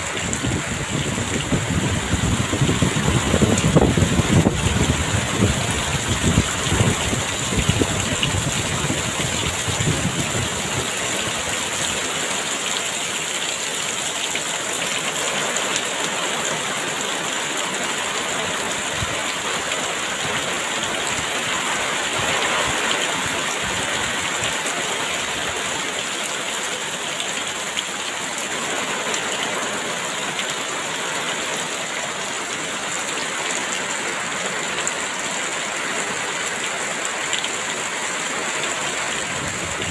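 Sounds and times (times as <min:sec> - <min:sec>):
wind gusts rumbling: 0:00.0 - 0:11.8, 0:39.1 - 0:39.9
heavy rain pouring: 0:00.0 - 0:39.9.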